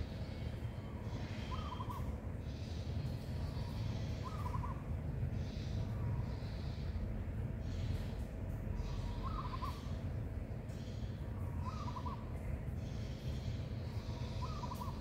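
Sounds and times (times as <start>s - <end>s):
bird calling: 0.0s - 2.8s, 3.4s - 6.8s, 8.8s - 10.0s, 10.7s - 15.0s
low outdoor rumble: 0.0s - 15.0s.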